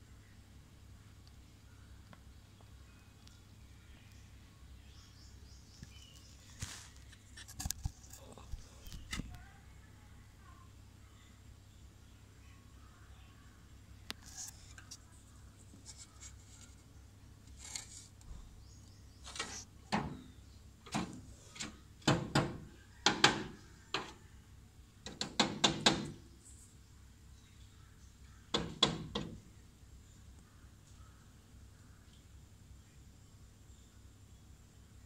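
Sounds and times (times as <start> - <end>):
woodpecker pecking at a mirror: 20.9 - 24.2, 25.0 - 26.2, 28.5 - 29.4.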